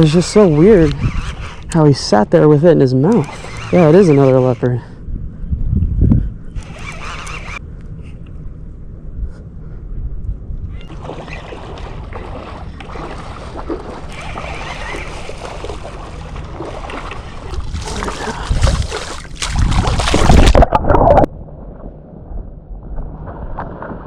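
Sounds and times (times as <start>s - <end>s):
water splashing in shallows: 10.8s - 21.3s.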